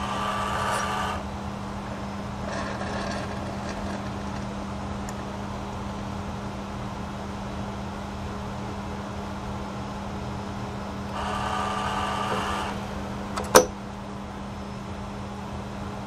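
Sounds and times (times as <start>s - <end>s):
coffee machine whirring: 0.0s - 6.2s, 10.9s - 14.1s
coffee machine hum: 0.0s - 16.0s.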